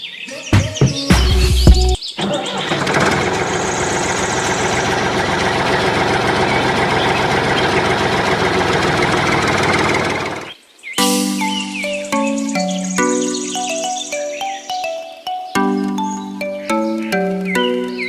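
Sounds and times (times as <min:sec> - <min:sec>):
small motor chattering: 0:02.6 - 0:10.5.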